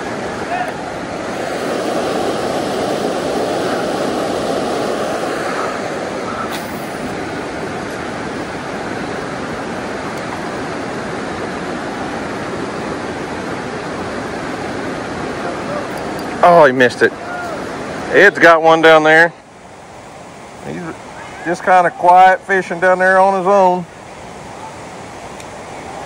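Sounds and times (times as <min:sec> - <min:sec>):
creek water rushing: 0:00.0 - 0:26.0.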